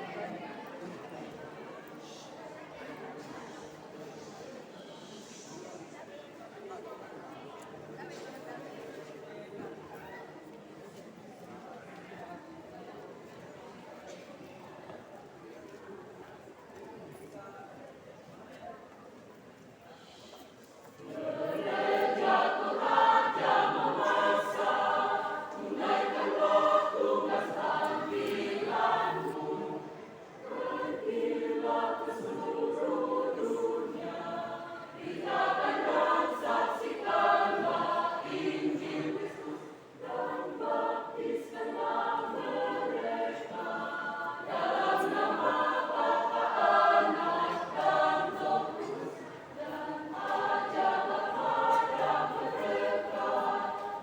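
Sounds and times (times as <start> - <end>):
church choir singing: 21.0 - 54.0.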